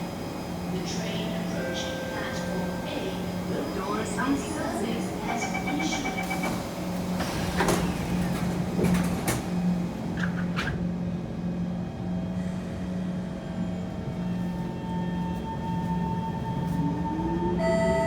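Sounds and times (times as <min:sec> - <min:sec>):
train electrical hum: 0:00.0 - 0:18.0
knocks and clatters: 0:07.2 - 0:10.8.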